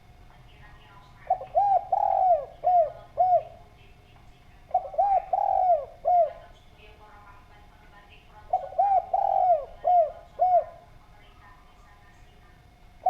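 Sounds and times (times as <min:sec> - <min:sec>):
dove cooing: 0:00.9 - 0:03.9, 0:04.5 - 0:06.6, 0:08.3 - 0:11.0.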